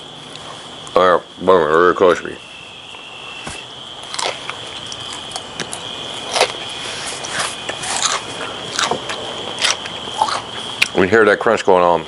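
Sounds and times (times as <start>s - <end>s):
faint high-pitched whine: 0.0s - 12.0s
person chewing crunchy food: 4.0s - 11.0s.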